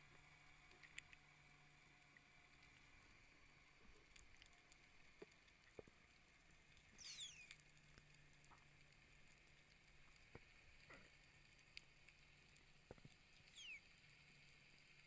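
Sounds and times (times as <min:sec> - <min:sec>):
faint clicks: 0:00.5 - 0:01.3
high falling squeak: 0:07.0 - 0:07.4.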